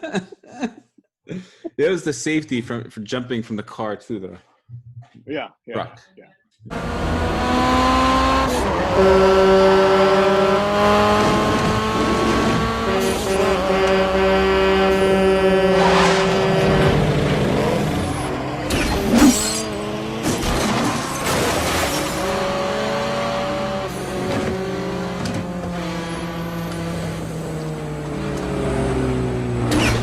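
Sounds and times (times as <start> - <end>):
car engines revving and passing: 6.7 - 30.0.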